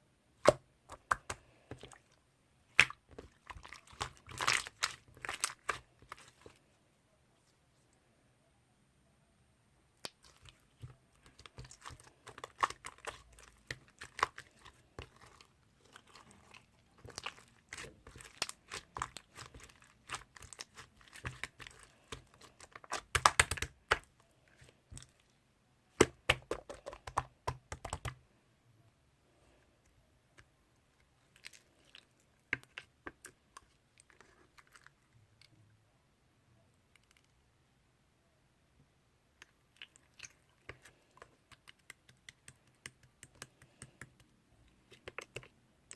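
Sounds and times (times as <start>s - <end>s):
slime crackling and popping: 11.2s - 24.0s.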